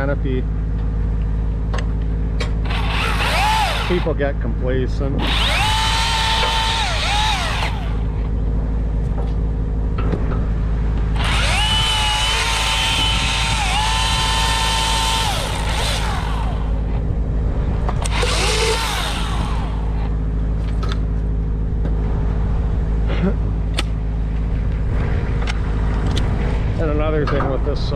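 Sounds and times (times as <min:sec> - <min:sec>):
engine drone: 0:00.0 - 0:27.9
chainsaw whining: 0:02.6 - 0:04.2, 0:05.1 - 0:08.3, 0:11.1 - 0:17.0, 0:18.0 - 0:20.2.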